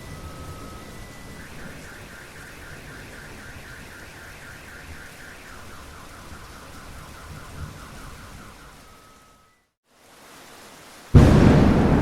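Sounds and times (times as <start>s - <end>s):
steady rain: 0.0s - 12.0s
car alarm wailing: 0.2s - 7.5s.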